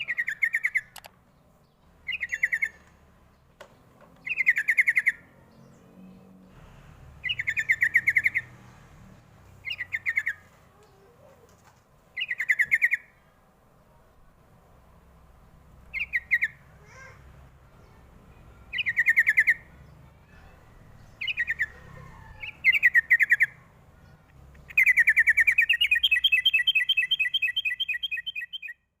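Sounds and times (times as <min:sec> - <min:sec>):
bird song with rapid repeated notes: 0:00.0 - 0:06.6, 0:07.2 - 0:08.9, 0:09.5 - 0:11.1, 0:12.1 - 0:13.3, 0:15.9 - 0:16.7, 0:17.7 - 0:29.0
bird trilling between two pitches: 0:02.1 - 0:02.8, 0:24.6 - 0:28.9.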